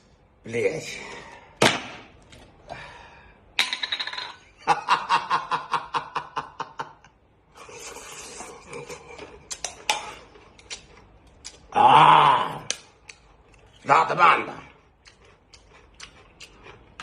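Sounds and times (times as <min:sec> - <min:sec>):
breathy exhale: 0:02.6 - 0:03.4.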